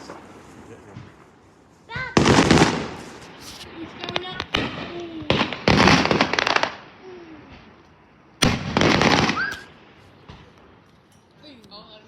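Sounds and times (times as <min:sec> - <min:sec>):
firework bang: 0:00.0 - 0:07.7, 0:08.4 - 0:10.8
fireworks crackling: 0:00.0 - 0:12.0.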